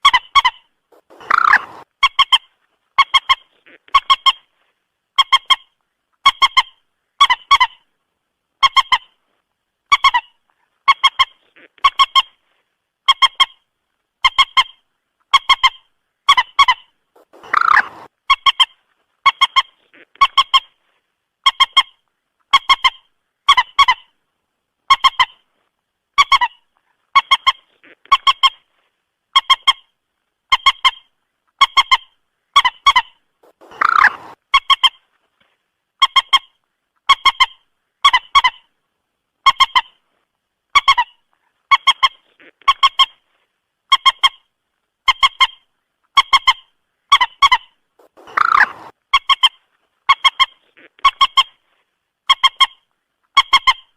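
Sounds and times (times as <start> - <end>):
recorded moorhen calls: 0.0 - 4.5, 14.2 - 20.8, 30.5 - 35.0, 45.1 - 51.6.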